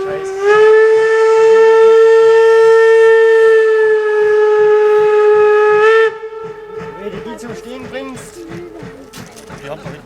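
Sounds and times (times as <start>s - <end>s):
steam locomotive whistle blast: 0.0s - 7.2s.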